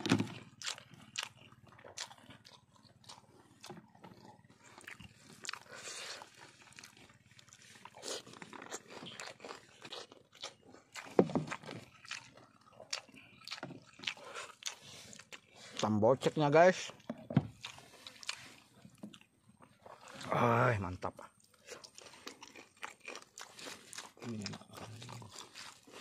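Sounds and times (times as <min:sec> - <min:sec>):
crunching and chewing: 0:00.0 - 0:26.0.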